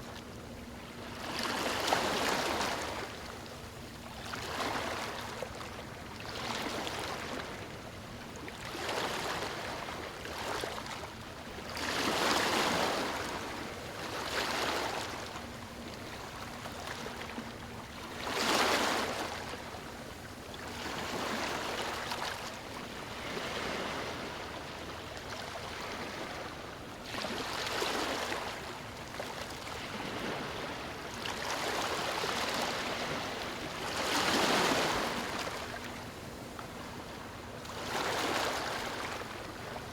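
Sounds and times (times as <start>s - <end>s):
waves breaking on stony shore: 29.7s - 35.9s, 37.7s - 39.2s.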